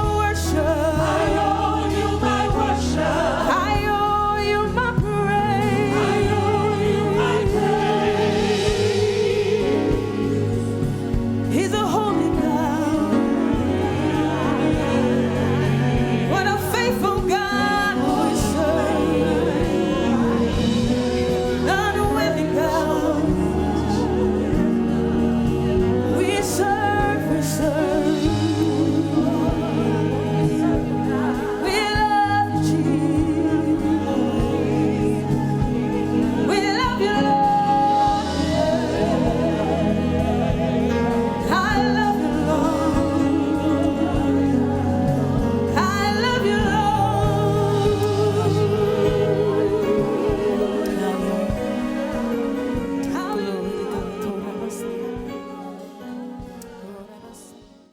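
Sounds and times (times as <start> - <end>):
instrumental accompaniment with bass: 0.0 - 57.5
voices singing with vibrato: 0.0 - 57.8.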